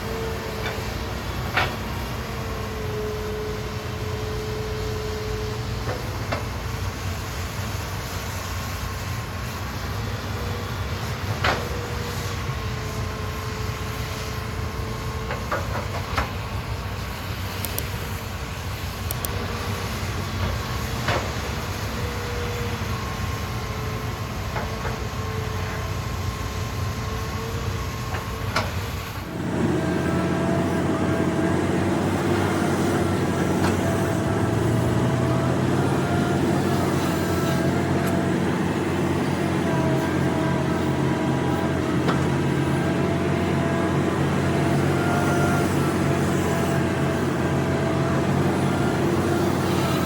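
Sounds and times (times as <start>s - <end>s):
excavator engine and hydraulics: 0.0s - 50.0s
held whine: 16.2s - 50.0s.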